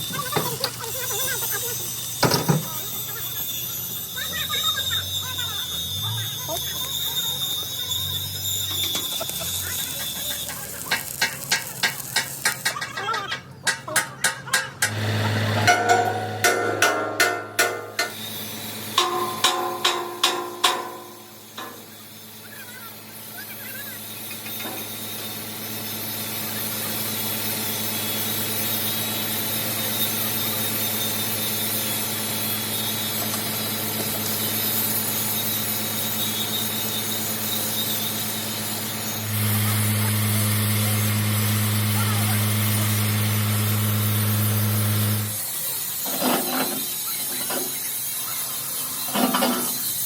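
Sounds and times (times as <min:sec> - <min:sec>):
hammer striking steel plate: 0:15.6 - 0:18.2, 0:18.9 - 0:22.0.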